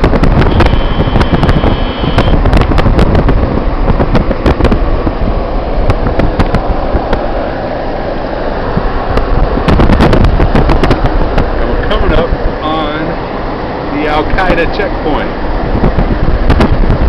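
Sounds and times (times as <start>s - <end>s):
car road and engine noise: 0.0s - 17.0s
wind buffeting the microphone: 0.0s - 17.0s.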